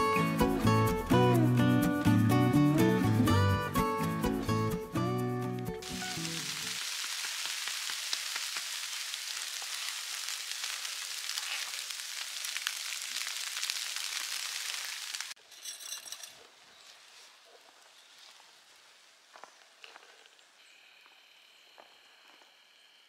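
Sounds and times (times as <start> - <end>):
snow pelting tent fabric: 5.8 - 15.4
faint outdoor ambience: 5.8 - 23.0.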